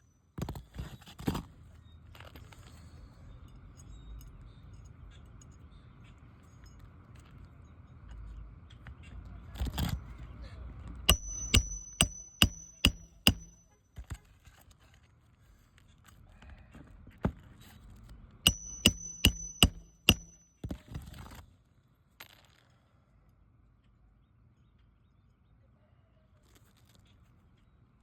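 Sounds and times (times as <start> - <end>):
hammer striking metal: 11.1 - 13.6, 18.5 - 20.5.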